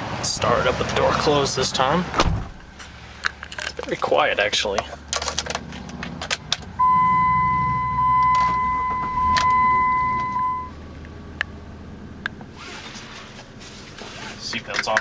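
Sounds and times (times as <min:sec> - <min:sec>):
car engine idling: 0:00.0 - 0:15.0
car warning chime: 0:06.8 - 0:10.8.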